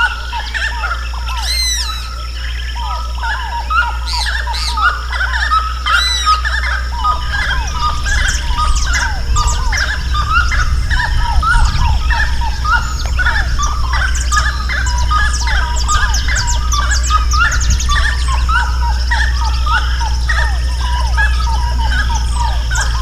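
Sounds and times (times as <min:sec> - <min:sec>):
birds chirping and whistling: 0:00.0 - 0:23.0
low hum: 0:00.0 - 0:23.0.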